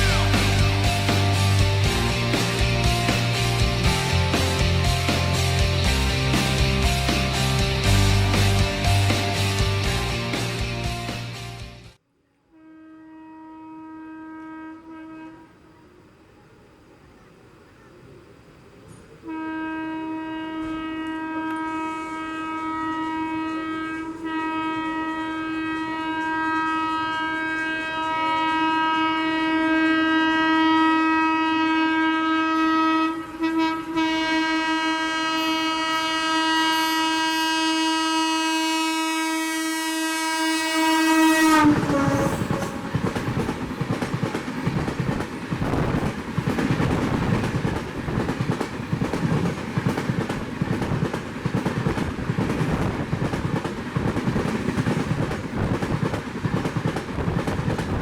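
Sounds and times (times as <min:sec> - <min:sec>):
locomotive horn blast: 0:00.0 - 0:07.4, 0:12.4 - 0:15.9, 0:19.2 - 0:44.0
train coaches rushing and clattering: 0:20.5 - 0:30.5, 0:40.4 - 0:58.0.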